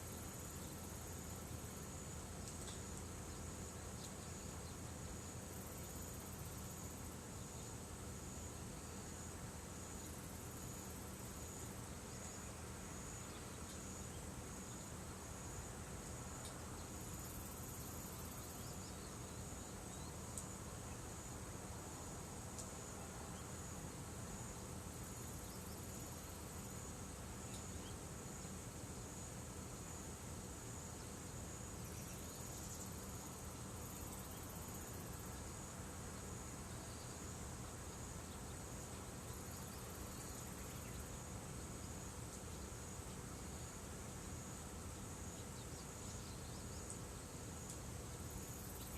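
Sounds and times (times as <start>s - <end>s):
insects chirring: 0.0s - 48.9s
faint ticks: 2.4s - 3.1s, 16.0s - 16.9s, 20.3s - 20.6s, 22.5s - 22.8s, 27.5s - 27.9s, 46.8s - 48.9s.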